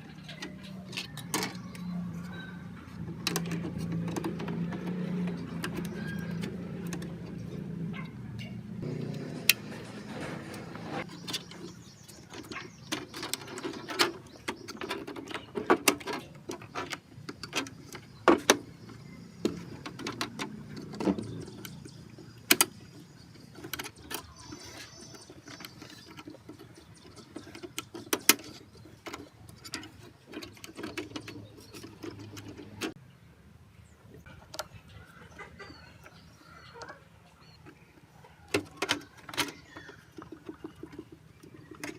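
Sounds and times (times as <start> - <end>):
metal parts and tools clicking: 0.0 - 7.7, 8.4 - 33.0.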